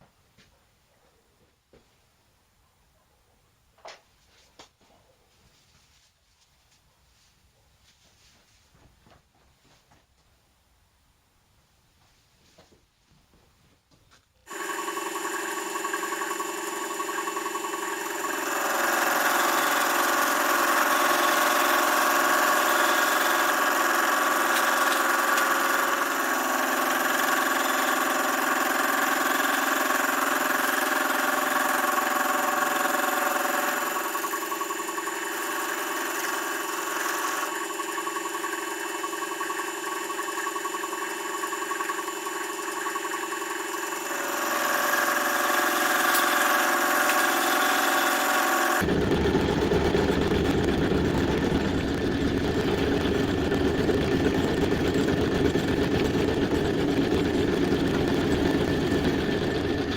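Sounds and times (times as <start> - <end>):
power tool motor whining: 14.5 - 59.9.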